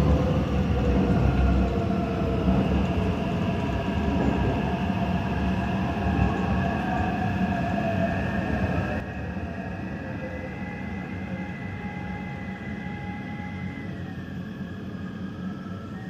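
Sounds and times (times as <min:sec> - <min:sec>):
train wheels rumbling on track: 0:00.0 - 0:16.0
electric motor whine: 0:10.2 - 0:16.0.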